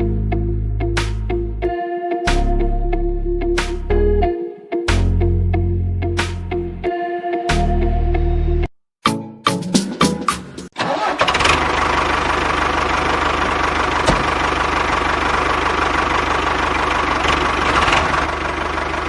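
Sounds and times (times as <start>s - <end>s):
motor running steadily: 13.0s - 18.1s.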